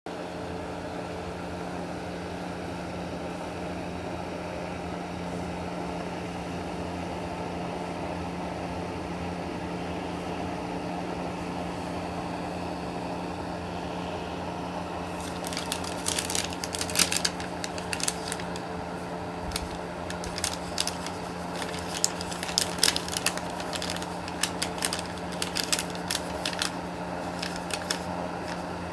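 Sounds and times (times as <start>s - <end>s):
low electrical hum: 0.2s - 28.9s
packaged items clicking and tapping: 15.1s - 18.6s, 19.5s - 28.6s.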